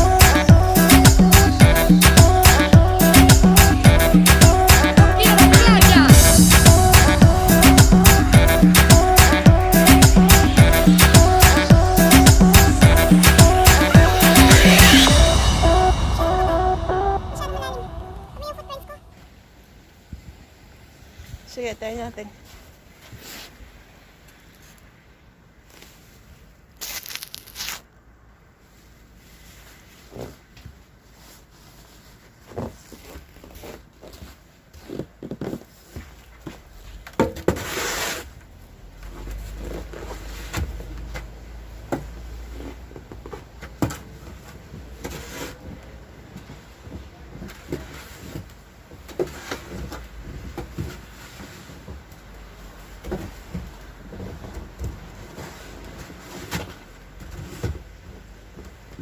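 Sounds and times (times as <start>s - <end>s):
loud rushing scrape: 0.8s - 18.6s
low rumble: 5.8s - 19.6s
snow crunching and shovelling: 21.9s - 23.9s, 25.5s - 27.8s, 28.6s - 37.0s, 37.6s - 41.2s, 44.1s - 54.4s, 55.1s - 58.2s.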